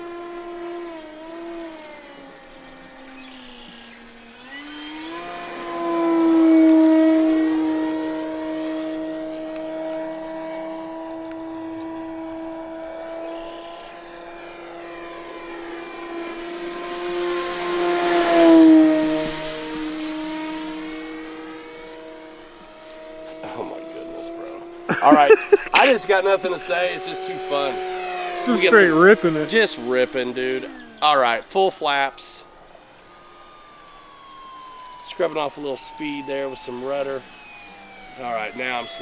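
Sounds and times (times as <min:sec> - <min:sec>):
model airplane motor whine: 0:00.0 - 0:39.0.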